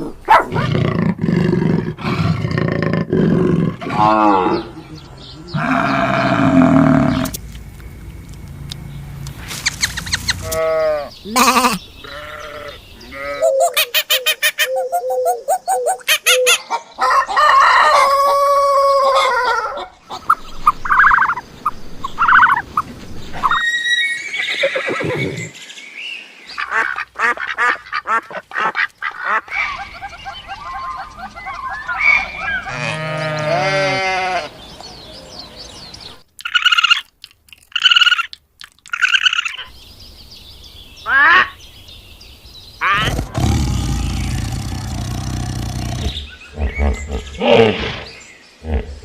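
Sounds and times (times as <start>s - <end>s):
farm animals calling: 0.0s - 7.4s, 9.6s - 21.4s, 22.1s - 25.6s, 26.6s - 34.6s, 41.0s - 41.6s, 42.8s - 49.0s.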